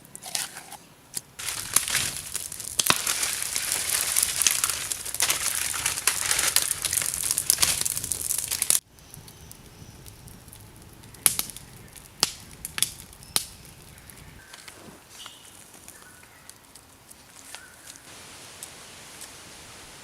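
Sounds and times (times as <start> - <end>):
dry material crunching and crinkling: 0.0 - 8.8.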